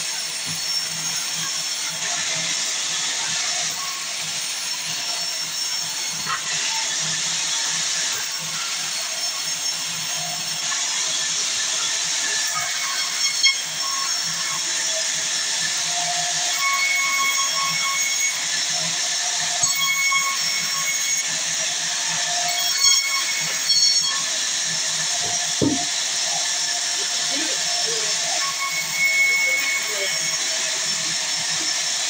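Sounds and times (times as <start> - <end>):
saw whining through wood: 0.0 - 32.0
sharp knocks: 25.2 - 26.0.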